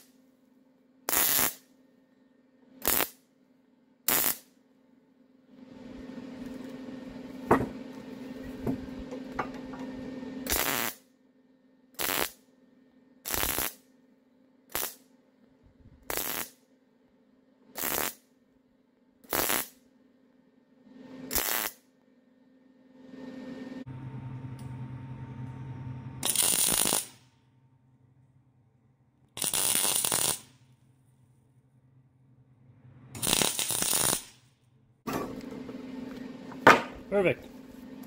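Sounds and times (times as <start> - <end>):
sharp welding pops: 1.1 - 1.6, 2.8 - 3.2, 4.1 - 4.5, 10.5 - 11.0, 12.0 - 12.4, 13.3 - 13.8, 14.7 - 15.1, 16.0 - 16.6, 17.8 - 18.3, 19.3 - 19.8, 21.3 - 21.8, 26.2 - 27.2, 29.4 - 30.5, 33.2 - 34.4
welder arc crackling: 1.1 - 1.6, 2.8 - 3.2, 4.1 - 4.5, 10.4 - 11.0, 12.0 - 12.4, 13.3 - 13.8, 14.7 - 15.1, 16.0 - 16.6, 17.8 - 18.2, 19.3 - 19.8, 21.3 - 21.8, 26.2 - 27.2, 29.4 - 30.6, 33.2 - 34.4
steady low hum: 5.5 - 10.5, 22.0 - 26.3.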